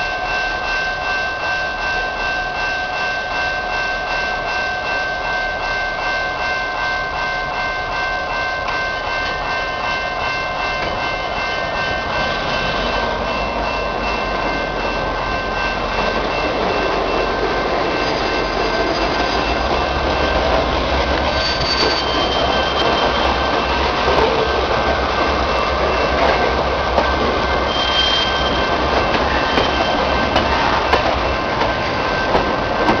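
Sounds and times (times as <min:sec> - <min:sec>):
diesel locomotive engine rumble: 0:08.7 - 0:33.0
train wheels squealing: 0:16.4 - 0:20.4, 0:21.2 - 0:24.6, 0:27.6 - 0:31.0.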